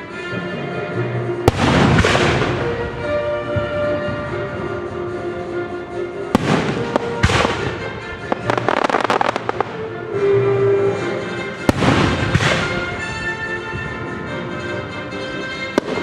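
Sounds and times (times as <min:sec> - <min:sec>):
orchestral music: 0:00.0 - 0:16.0
fireworks bangs: 0:01.5 - 0:04.7, 0:06.3 - 0:09.9, 0:11.7 - 0:14.0, 0:15.7 - 0:16.0
fireworks crackle: 0:06.3 - 0:09.9.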